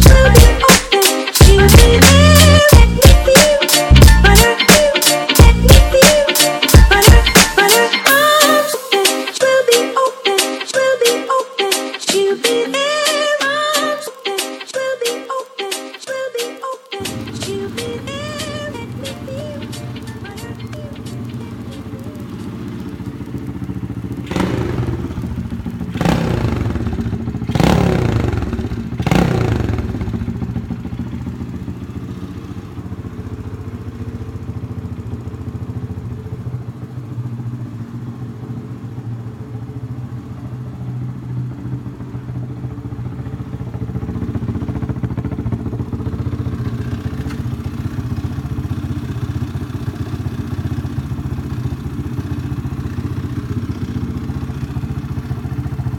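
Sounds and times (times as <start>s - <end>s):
small motorbike engine idling: 0.0s - 4.5s, 17.0s - 55.9s
engine throttle blips: 17.0s - 55.9s.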